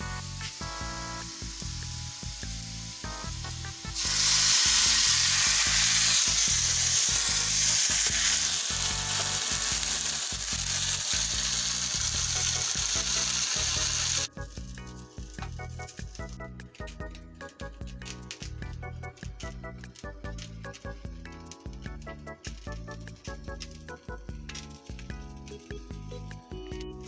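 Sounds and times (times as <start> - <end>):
food sizzling in frying pan: 0.0 - 16.3
background music: 0.0 - 27.0.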